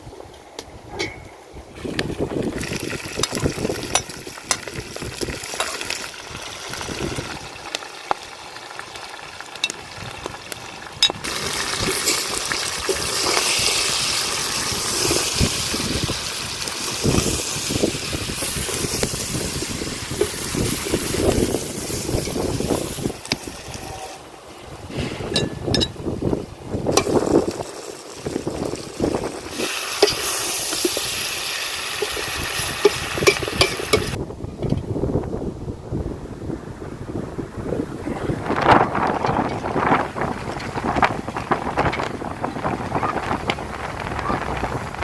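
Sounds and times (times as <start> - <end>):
food sizzling and bubbling: 1.7 - 34.2.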